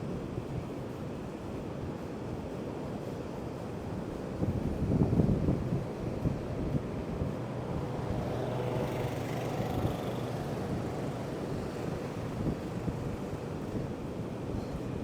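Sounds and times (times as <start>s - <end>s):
wind buffeting microphone: 4.2s - 15.0s.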